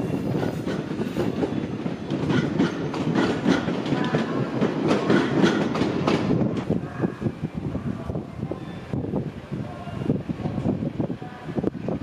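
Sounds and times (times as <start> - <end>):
train wheels clacking: 0.0 - 6.7
train rumble: 0.0 - 12.0.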